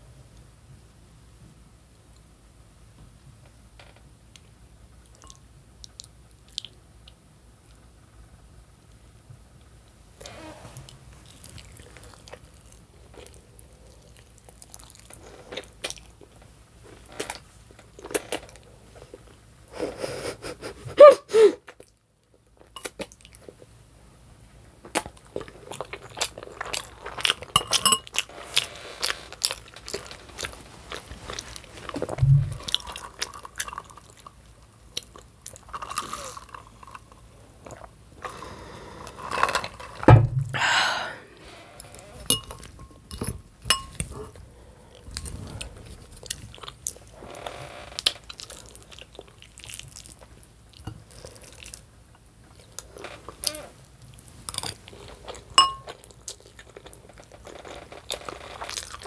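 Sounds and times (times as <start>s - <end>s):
chewing and wet mouth sounds: 5.1s - 7.8s, 10.9s - 16.4s, 21.6s - 23.7s, 24.9s - 38.4s, 48.0s - 59.0s.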